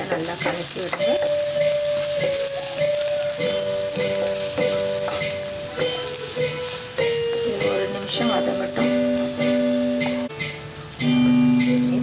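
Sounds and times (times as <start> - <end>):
background music with held notes: 0.0 - 12.0
food sizzling in hot oil: 0.0 - 12.0
spatula stirring and scraping: 0.1 - 9.3.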